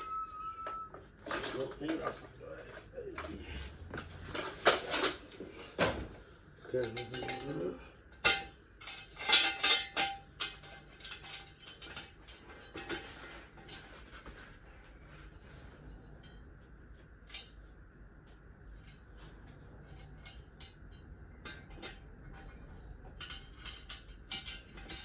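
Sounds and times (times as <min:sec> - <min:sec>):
metal tools clinking and knocking: 0:00.0 - 0:14.2, 0:18.8 - 0:25.0.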